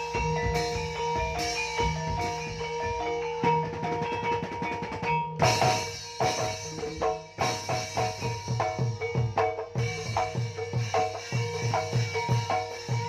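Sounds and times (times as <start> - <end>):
gamelan music: 0.0 - 13.0
hand drum strokes: 0.0 - 13.0.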